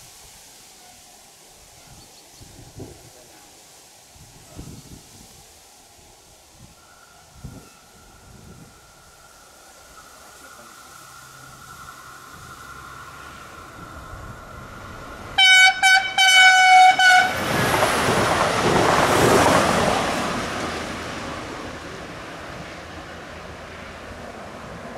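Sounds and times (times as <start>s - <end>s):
train passing by: 0.0s - 24.9s
train horn toots and blast: 15.4s - 17.5s.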